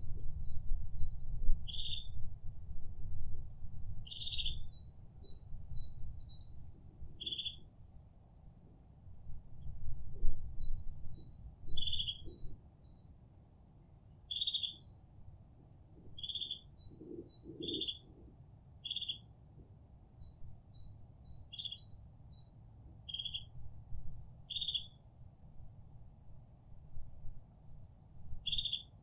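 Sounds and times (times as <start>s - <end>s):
steady low rumble: 0.0s - 7.9s.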